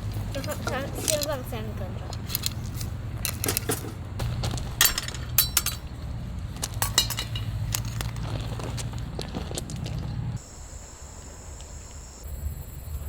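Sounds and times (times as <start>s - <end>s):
clinks of hard objects: 0.0s - 10.3s
steady low hum: 0.0s - 13.0s.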